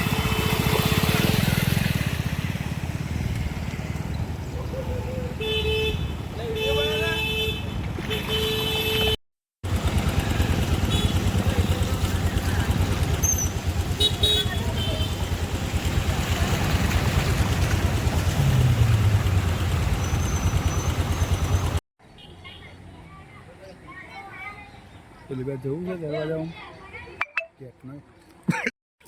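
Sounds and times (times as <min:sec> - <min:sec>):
vehicle engine running: 0:09.6 - 0:21.8.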